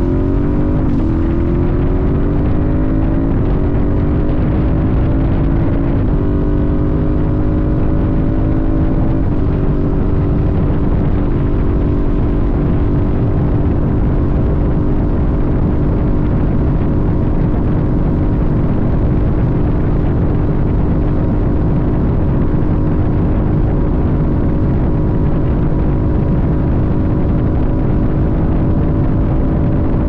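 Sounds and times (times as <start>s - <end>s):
motorcycle engine cruising: 0.0s - 30.0s
wind and road noise: 0.0s - 30.0s.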